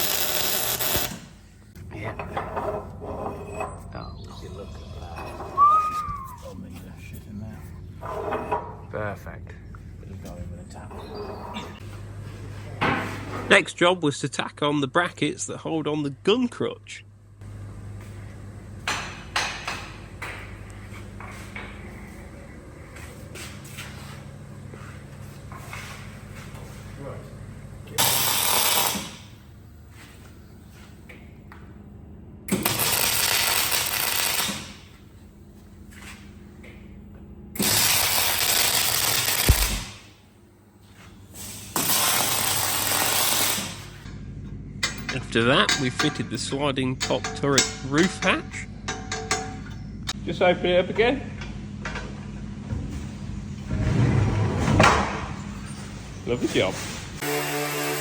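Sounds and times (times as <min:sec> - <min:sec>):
welding crackle and hiss: 0:00.0 - 0:01.4, 0:28.0 - 0:29.4, 0:32.5 - 0:35.0, 0:37.6 - 0:40.1, 0:41.4 - 0:44.0
steady low hum: 0:00.0 - 0:57.3
metallic clanks and knocks: 0:44.8 - 0:49.8.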